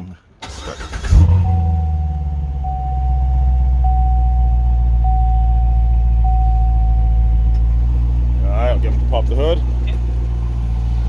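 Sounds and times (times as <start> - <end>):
car engine idling: 0.4 - 11.0
dashboard warning chime: 0.8 - 8.4.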